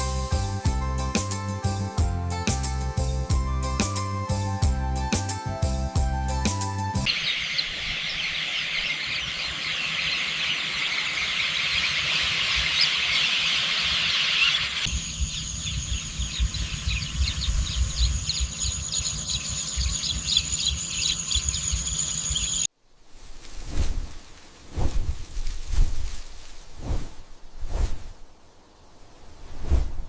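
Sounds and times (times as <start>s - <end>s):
birds chirping: 7.1s - 22.7s
high insect buzz: 14.9s - 22.7s.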